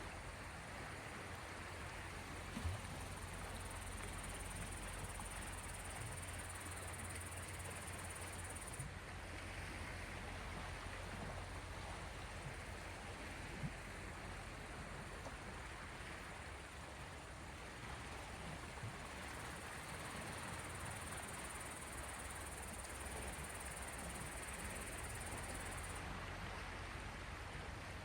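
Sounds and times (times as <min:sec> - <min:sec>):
small waves washing on shore: 0:00.0 - 0:28.0.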